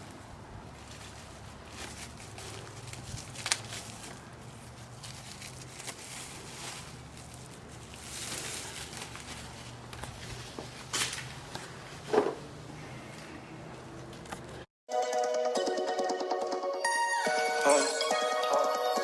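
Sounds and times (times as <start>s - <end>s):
soft rustling and scraping: 0.0s - 14.6s.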